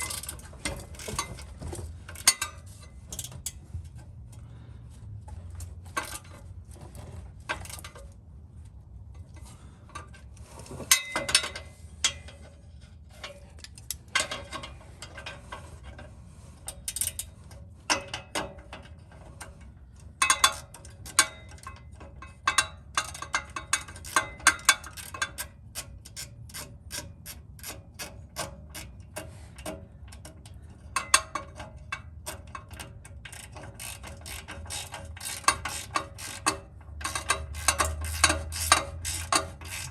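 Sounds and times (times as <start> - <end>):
ratchet wrench clicking: 32.2 - 39.9.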